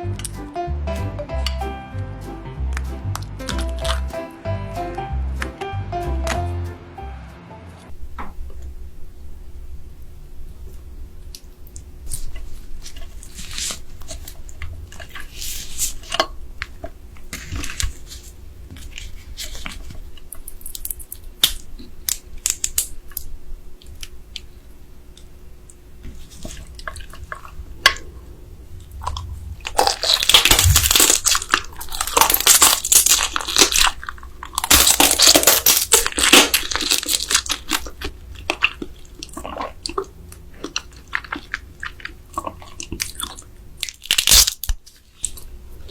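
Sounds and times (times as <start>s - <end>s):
loud crunching of crab: 20.5s - 23.3s, 29.0s - 45.5s
chewing with small clicks: 37.1s - 44.0s.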